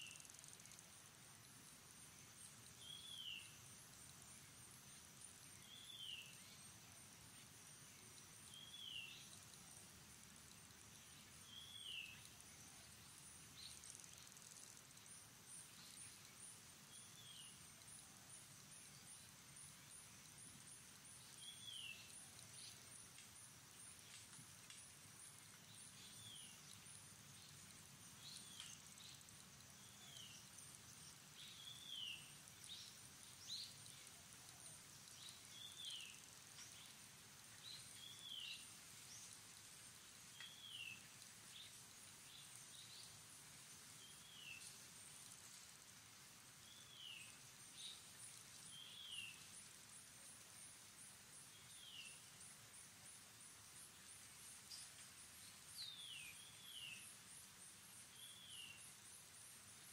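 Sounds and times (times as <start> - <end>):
steady high-pitched hiss: 0.0 - 59.9
bird chirping: 2.5 - 3.7, 4.3 - 9.8, 10.4 - 17.8, 21.1 - 22.9, 25.5 - 34.2, 34.9 - 36.9.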